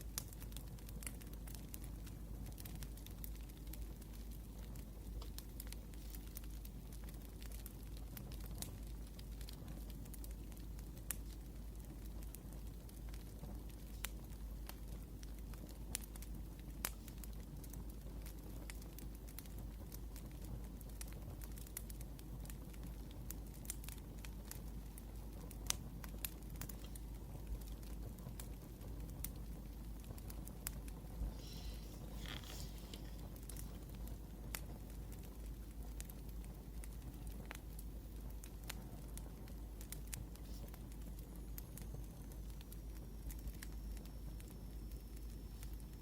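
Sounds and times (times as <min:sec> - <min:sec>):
low steady rumble: 0:00.0 - 0:46.0
wood fire crackling: 0:00.0 - 0:46.0.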